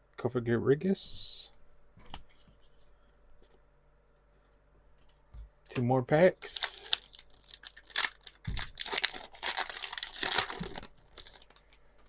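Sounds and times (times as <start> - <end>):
foil wrapper crinkling and tearing: 6.4 - 11.8.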